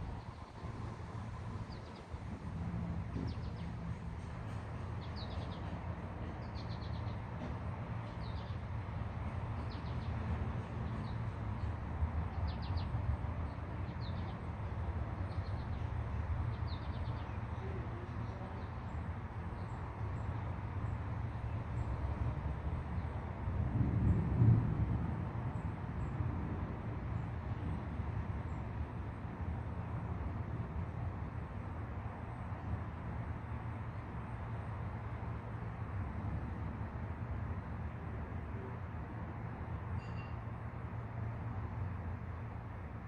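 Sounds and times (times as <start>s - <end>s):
low outdoor rumble: 0.0s - 19.7s, 20.6s - 39.8s.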